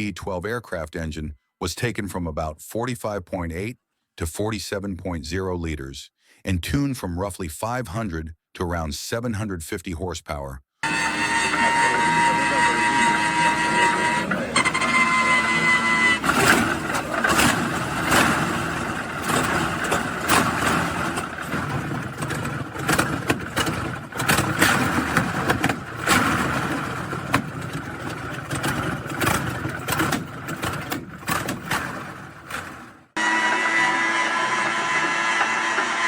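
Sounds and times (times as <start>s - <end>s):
sharp engine cracks: 10.8s - 33.1s
aircraft engine revving: 10.8s - 36.0s.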